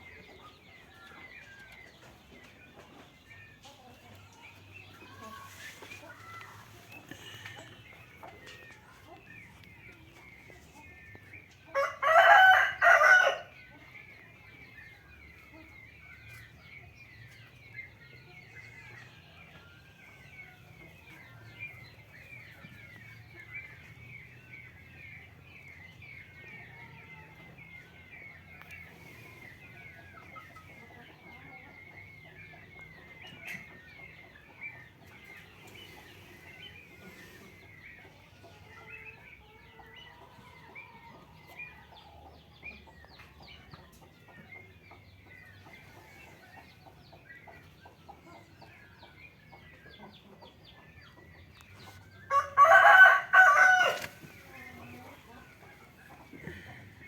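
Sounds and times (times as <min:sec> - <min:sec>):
rooster crowing: 0:11.7 - 0:13.5, 0:52.3 - 0:54.2.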